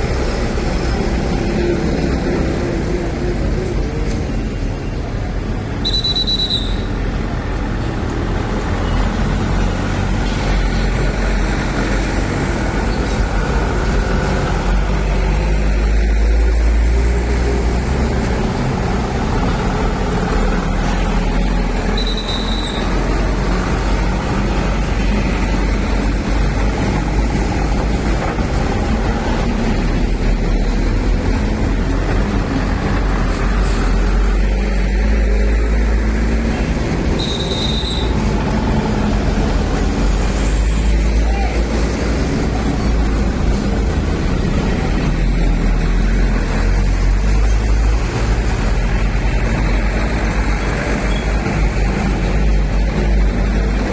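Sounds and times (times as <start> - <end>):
diesel truck engines rumbling: 0.0 - 53.9
high brake squeals: 5.8 - 7.0, 21.8 - 23.0, 37.1 - 38.3, 51.1 - 51.4.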